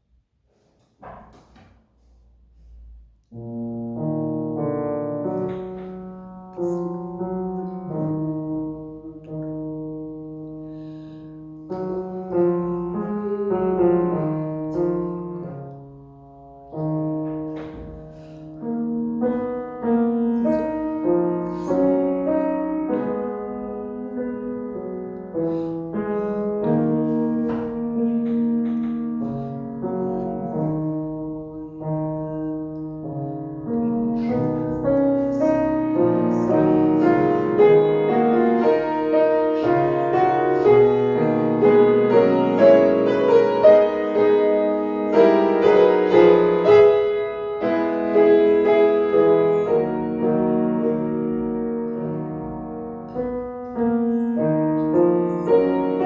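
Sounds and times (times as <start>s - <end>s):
piano playing slow classical music: 0.0s - 56.0s.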